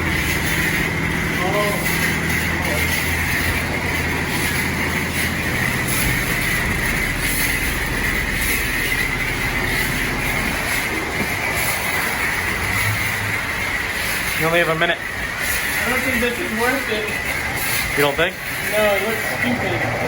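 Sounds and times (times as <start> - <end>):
spray wand hissing: 0.0 - 19.5
low pump hum: 0.0 - 20.0.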